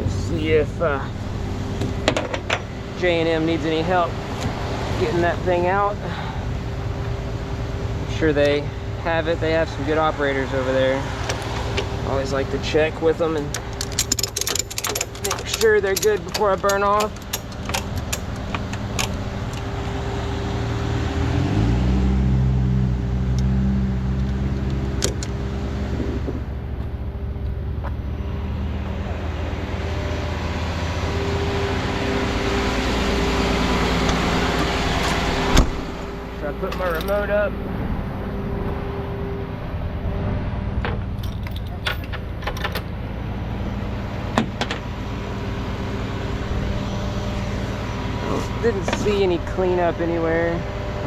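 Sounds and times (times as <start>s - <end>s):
diesel engine idling and revving: 0.0s - 51.0s
light metallic clinks: 13.5s - 19.7s.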